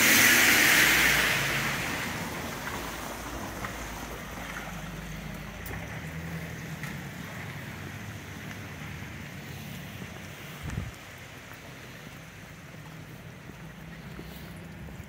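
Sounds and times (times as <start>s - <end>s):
car tyres hissing past: 0.0s - 5.2s, 7.0s - 10.9s, 13.8s - 15.0s
rain on wet streets: 0.0s - 15.0s
wind rumble on microphone: 10.0s - 11.2s.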